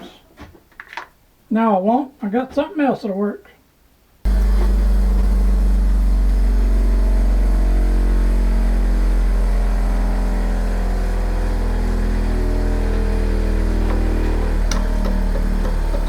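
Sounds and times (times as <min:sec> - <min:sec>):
bench grinder motor humming: 0:04.3 - 0:16.0.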